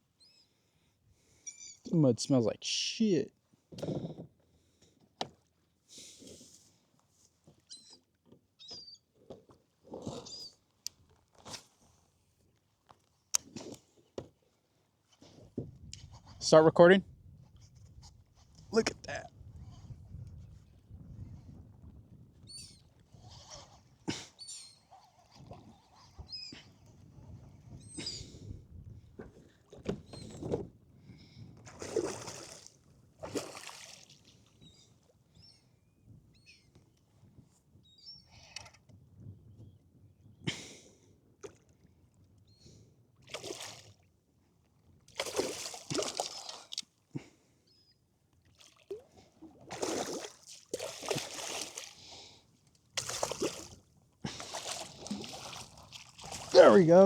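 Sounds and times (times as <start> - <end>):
water splashing at a kayak: 31.6 - 34.6, 43.2 - 44.1, 45.0 - 47.0, 48.4 - 52.3, 52.9 - 57.0.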